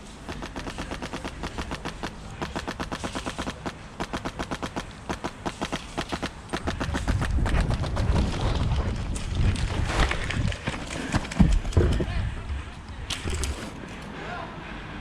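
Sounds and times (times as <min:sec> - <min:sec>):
airsoft gunfire rapid pops: 0:00.3 - 0:08.4.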